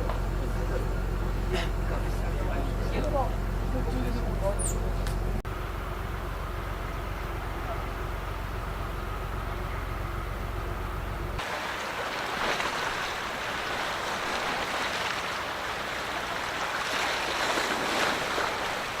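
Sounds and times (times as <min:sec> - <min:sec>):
low engine hum: 0:00.0 - 0:19.0
churning water rushing: 0:11.3 - 0:19.0.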